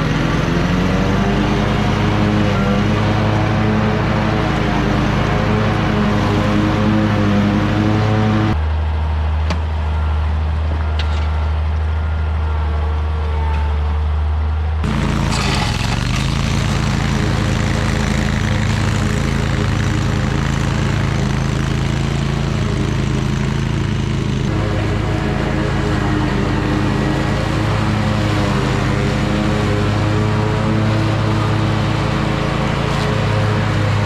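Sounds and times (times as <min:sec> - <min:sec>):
mower engine running: 0:14.8 - 0:34.0.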